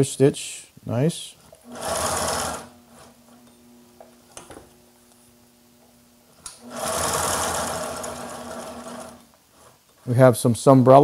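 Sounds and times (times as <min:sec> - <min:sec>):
sewing machine stitching: 0:01.6 - 0:03.2, 0:06.6 - 0:09.7
sewing machine motor humming: 0:01.6 - 0:03.4, 0:06.5 - 0:09.7.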